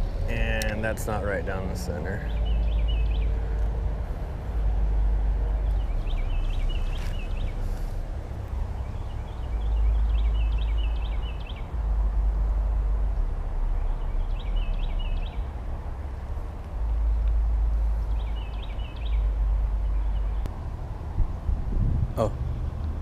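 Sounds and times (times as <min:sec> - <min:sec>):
wind buffeting microphone: 0:00.0 - 0:23.0
bird chirping: 0:00.2 - 0:03.8, 0:05.4 - 0:07.9, 0:08.7 - 0:11.8, 0:13.6 - 0:15.6, 0:17.8 - 0:20.5.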